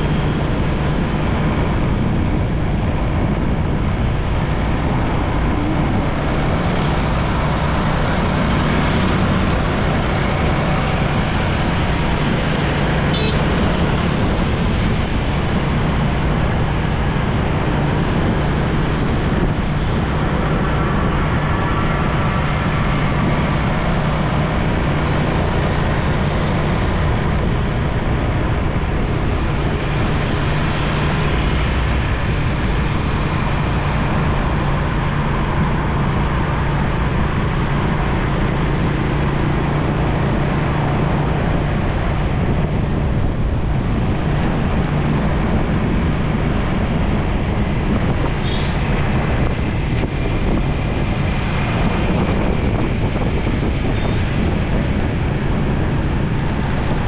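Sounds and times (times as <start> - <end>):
road and wind noise: 0.0 - 57.0
surrounding traffic: 0.0 - 57.0.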